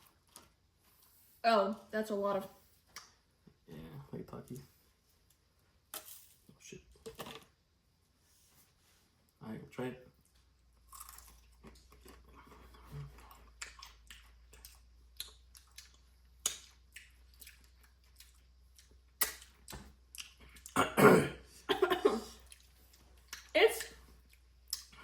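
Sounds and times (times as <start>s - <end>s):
crunchy dried meat chewing: 10.3s - 20.8s.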